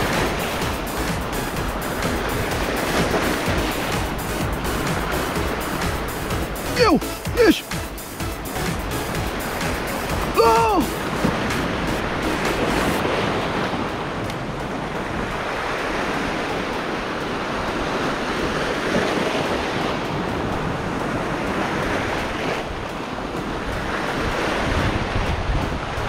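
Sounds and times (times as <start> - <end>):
surf washing over rocks: 0.0 - 26.0.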